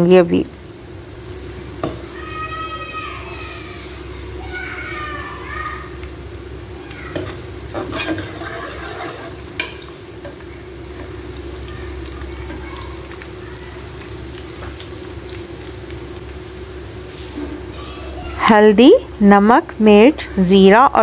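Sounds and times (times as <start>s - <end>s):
onions sizzling in oil: 0.0s - 21.0s
ladle scraping metal pot: 7.2s - 9.8s.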